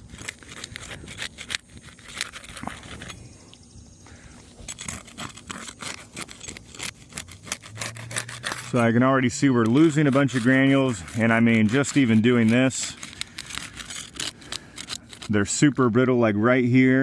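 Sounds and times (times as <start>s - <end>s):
metal tool scraping roof shingles: 0.0s - 3.2s, 4.6s - 15.9s
shingles clicking and crackling: 4.6s - 15.4s.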